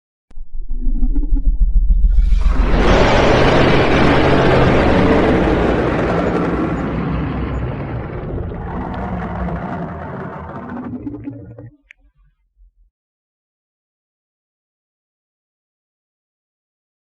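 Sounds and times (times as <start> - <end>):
dragon rushing blast: 2.0 - 11.7.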